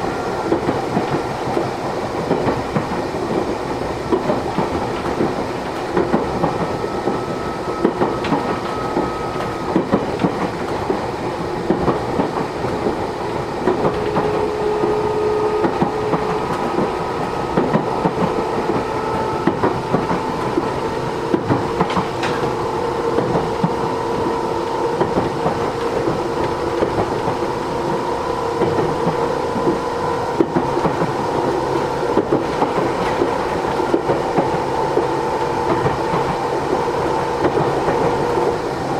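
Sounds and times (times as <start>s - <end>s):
train running noise: 0.0s - 38.9s
wheels clicking over rail joints: 17.6s - 22.6s.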